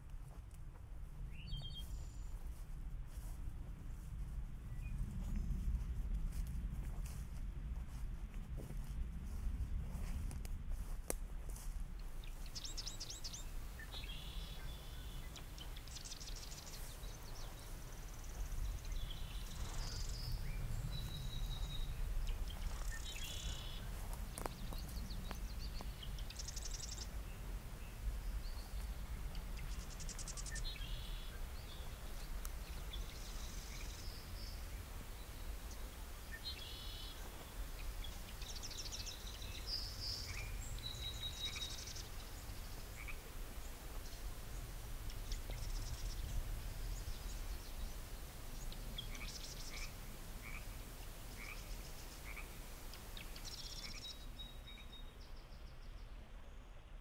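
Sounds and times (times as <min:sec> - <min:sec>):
low background rumble: 0:00.0 - 0:57.0
small birds calling: 0:12.1 - 0:56.0.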